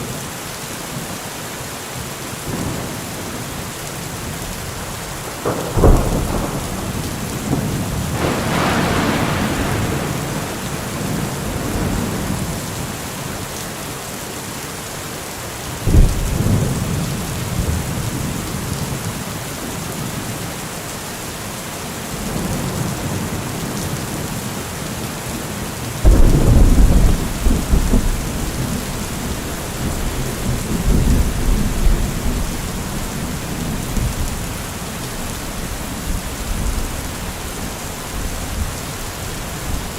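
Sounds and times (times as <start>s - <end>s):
steady rain: 0.0s - 39.9s
thunder: 5.3s - 13.0s, 15.8s - 18.9s, 26.0s - 34.5s.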